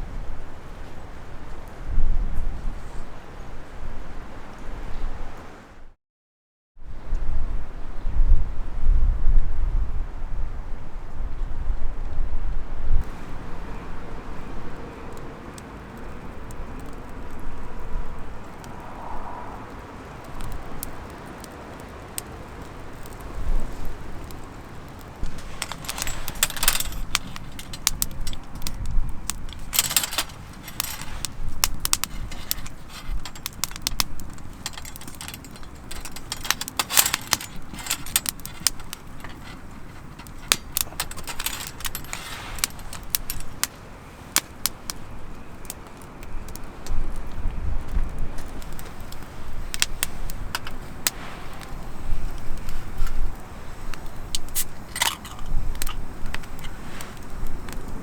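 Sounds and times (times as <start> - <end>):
metallic clinking of gear: 25.2 - 43.7, 49.7 - 53.3, 54.0 - 57.4.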